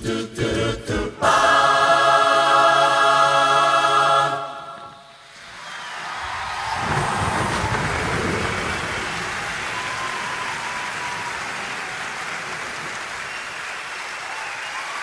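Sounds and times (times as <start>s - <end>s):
a cappella group singing: 0.0s - 5.0s.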